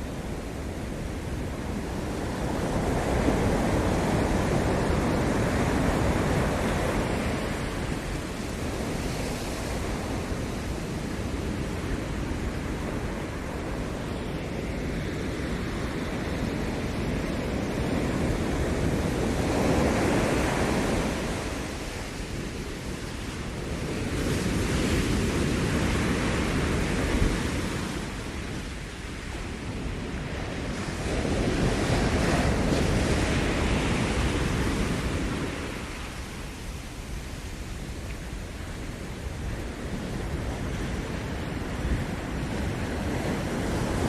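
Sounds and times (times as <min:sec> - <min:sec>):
ocean surf breaking: 0:00.0 - 0:44.0.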